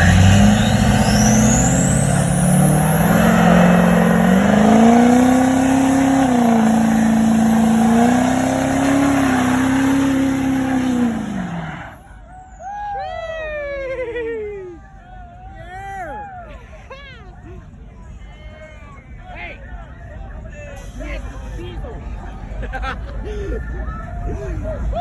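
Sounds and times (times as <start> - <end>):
engine revving high: 0.0 - 12.0
hiss of spinning tyres: 0.1 - 12.0.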